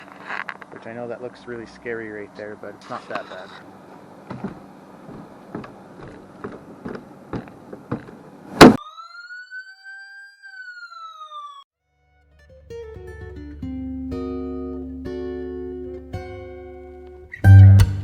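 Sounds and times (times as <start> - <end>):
sharp bang: 8.6 - 8.8
siren-like tone: 8.7 - 11.7.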